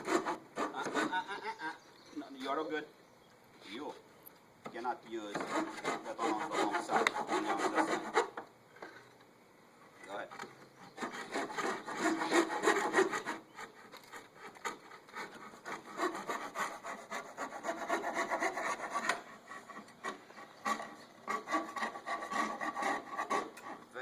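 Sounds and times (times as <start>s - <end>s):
hand saw cutting plywood: 0.0s - 1.3s, 5.3s - 8.4s, 10.8s - 24.0s.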